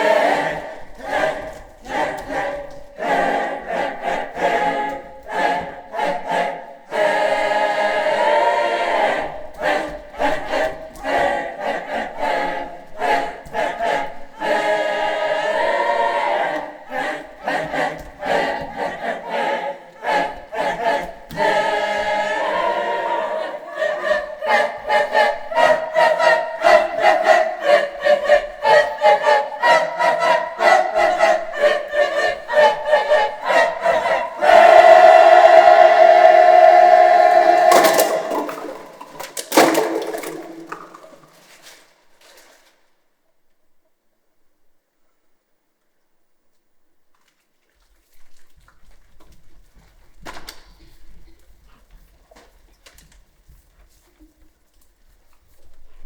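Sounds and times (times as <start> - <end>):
choir singing: 0.0 - 41.4.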